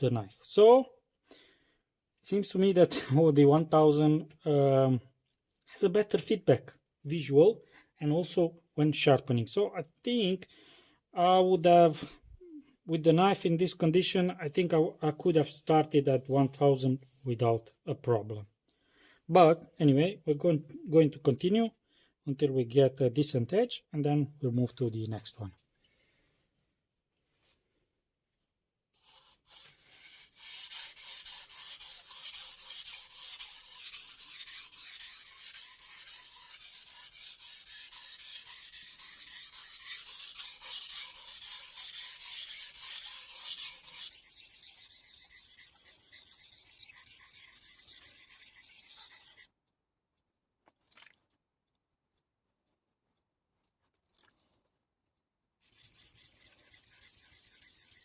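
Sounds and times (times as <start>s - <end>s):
knife scraping on whetstone: 29.0s - 49.5s, 55.6s - 58.0s.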